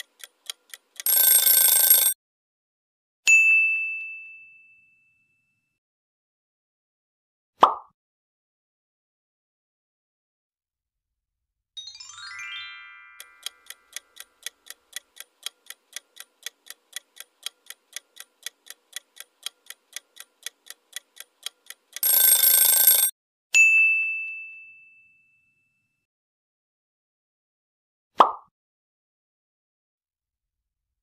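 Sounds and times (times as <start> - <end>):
timer ticking: 0.0 - 2.2, 13.2 - 23.1
alarm ringing: 1.0 - 2.2, 22.0 - 23.1
bell ding: 3.3 - 5.7, 23.6 - 26.0
rising chime: 11.8 - 13.2.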